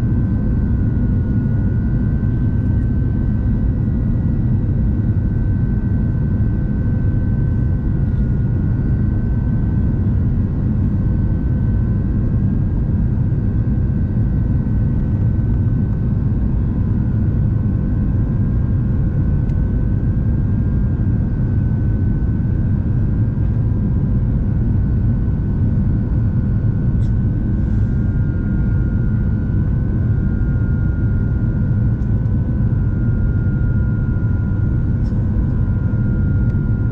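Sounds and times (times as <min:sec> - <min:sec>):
aircraft cabin airflow and engine noise: 0:00.0 - 0:36.9.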